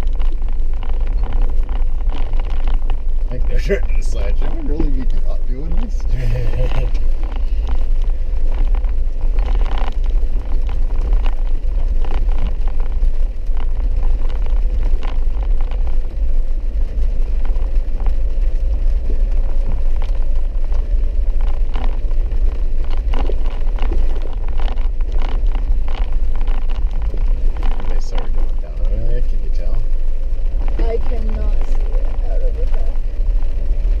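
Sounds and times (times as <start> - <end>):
vehicle engine and tyres rumbling: 0.0 - 34.0.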